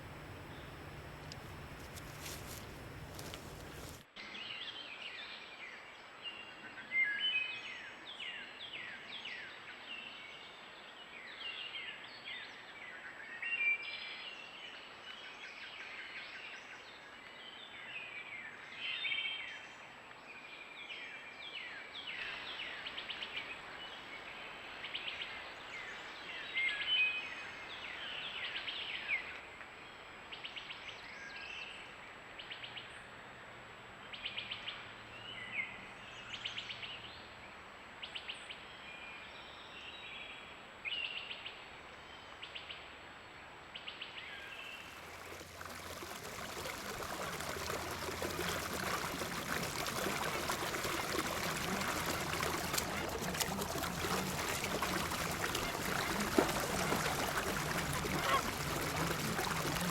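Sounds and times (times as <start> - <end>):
small birds chirping: 0.0 - 4.0.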